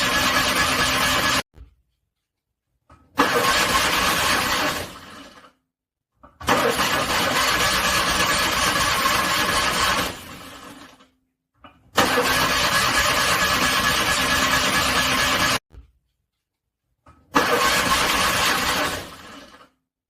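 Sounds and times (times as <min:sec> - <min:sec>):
starter motor cranking car engine: 0:00.0 - 0:01.4, 0:03.2 - 0:05.6, 0:06.4 - 0:11.0, 0:12.0 - 0:15.6, 0:17.3 - 0:19.8.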